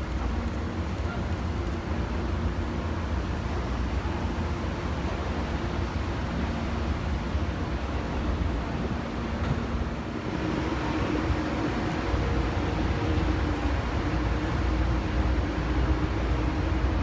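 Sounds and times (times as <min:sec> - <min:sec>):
diesel locomotive rumbling: 0:00.0 - 0:17.0.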